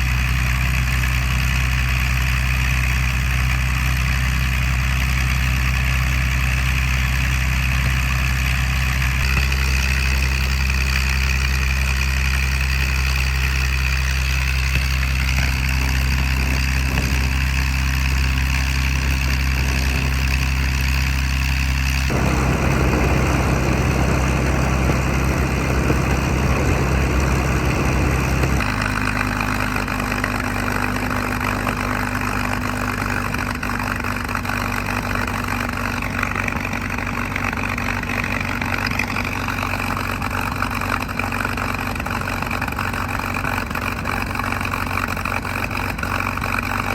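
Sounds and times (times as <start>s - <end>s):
aircraft piston engine running: 9.0s - 30.9s.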